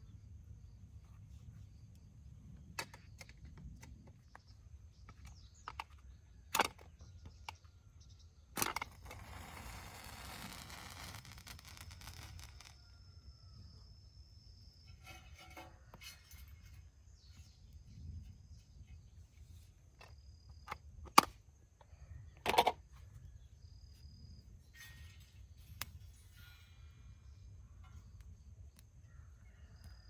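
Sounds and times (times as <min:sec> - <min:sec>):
rustling: 0:08.9 - 0:12.8.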